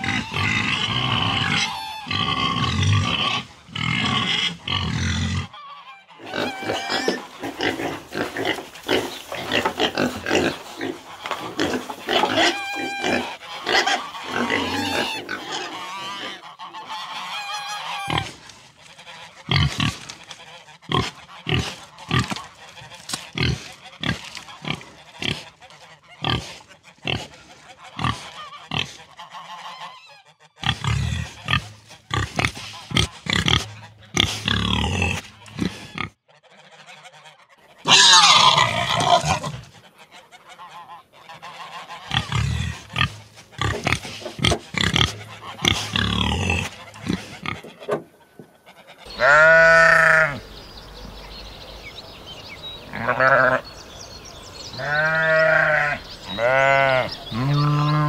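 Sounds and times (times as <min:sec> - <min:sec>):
waterfowl calling: 0:00.0 - 0:02.7, 0:05.4 - 0:51.7, 0:52.8 - 0:58.0
pigs grunting and squealing: 0:00.0 - 0:36.2, 0:37.7 - 0:50.4, 0:54.8 - 0:58.0.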